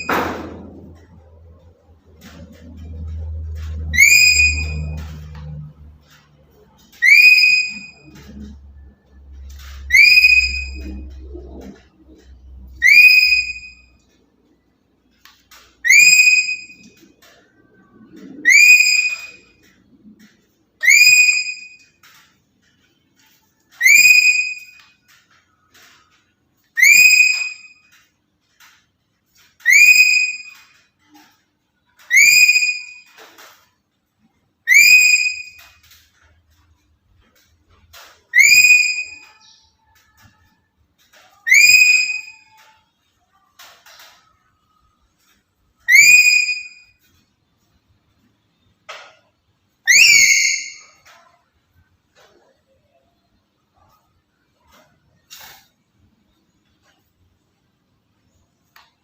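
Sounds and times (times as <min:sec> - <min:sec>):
parrot whistle-like calls: 0:03.8 - 0:05.7, 0:06.9 - 0:08.3, 0:09.8 - 0:11.2, 0:12.7 - 0:13.9, 0:15.8 - 0:16.9, 0:18.4 - 0:19.5, 0:20.8 - 0:21.8, 0:23.8 - 0:24.9, 0:26.8 - 0:27.8, 0:29.6 - 0:30.7, 0:32.1 - 0:33.2, 0:34.7 - 0:35.8, 0:38.3 - 0:39.6, 0:41.4 - 0:42.8, 0:45.8 - 0:47.0, 0:49.8 - 0:51.1.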